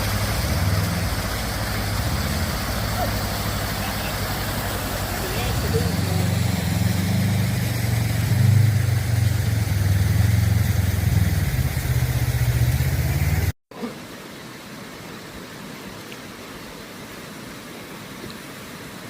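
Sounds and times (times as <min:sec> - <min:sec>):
vehicle engine running: 0:00.0 - 0:13.5.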